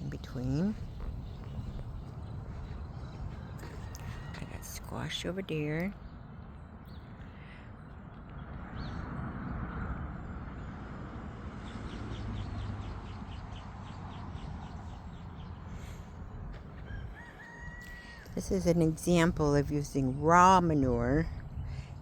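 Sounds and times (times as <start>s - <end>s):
low rumble: 0.0s - 6.1s.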